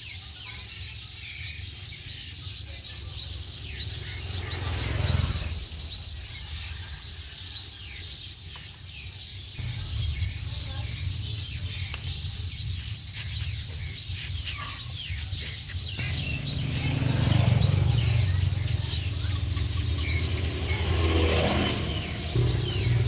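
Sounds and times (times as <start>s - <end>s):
birds chirping: 0.0s - 23.0s
low rumble: 9.6s - 14.2s, 15.8s - 23.0s.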